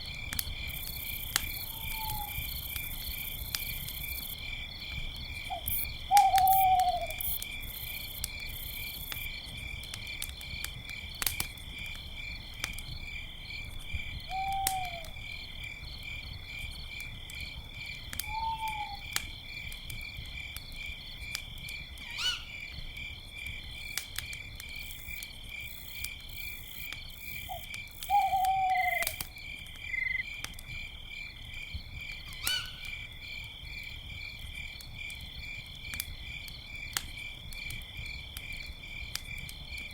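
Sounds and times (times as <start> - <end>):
campfire crackling and popping: 0.0 - 22.0, 22.6 - 39.9
crickets chirping: 0.0 - 39.9
owl hooting: 1.7 - 2.4, 5.5 - 7.2, 14.3 - 15.1, 18.3 - 19.0, 22.1 - 22.5, 27.5 - 29.2, 32.4 - 32.8.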